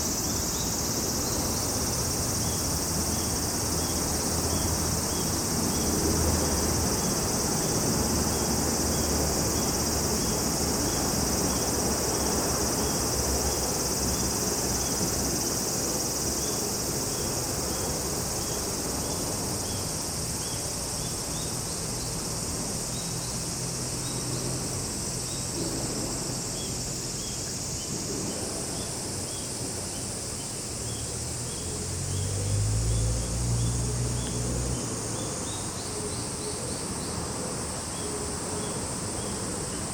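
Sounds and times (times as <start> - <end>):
insects shrilling and chirping: 0.0 - 39.9.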